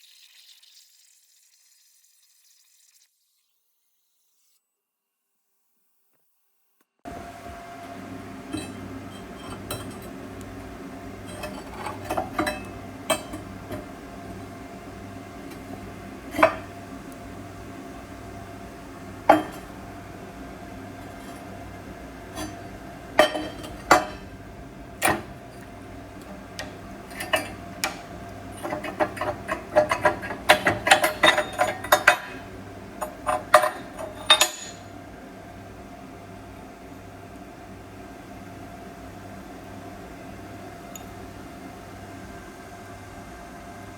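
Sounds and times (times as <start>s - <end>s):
machine hum: 7.1s - 38.1s.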